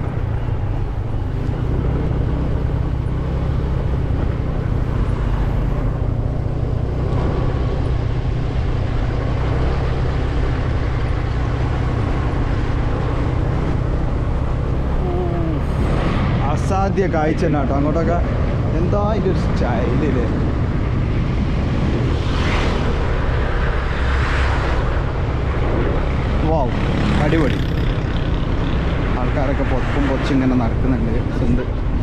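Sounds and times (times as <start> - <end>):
scooter engine humming: 0.0 - 16.4.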